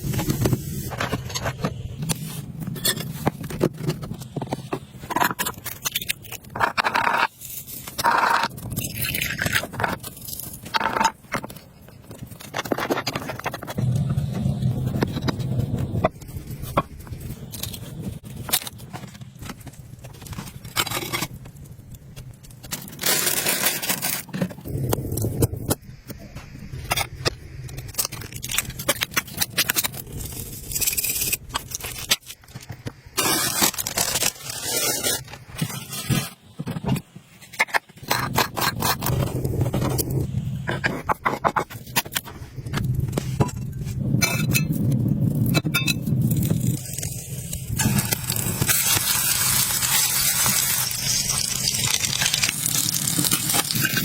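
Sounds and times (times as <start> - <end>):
scraping and crackling: 0.0 - 25.8, 26.8 - 54.0.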